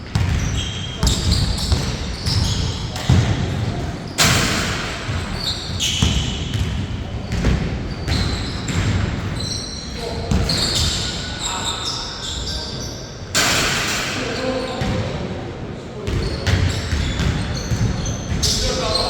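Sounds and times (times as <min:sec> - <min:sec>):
basketball bouncing on court: 0:00.0 - 0:09.6, 0:10.2 - 0:11.1, 0:16.0 - 0:19.0
sneaker squeaks: 0:00.0 - 0:15.2, 0:16.0 - 0:19.0.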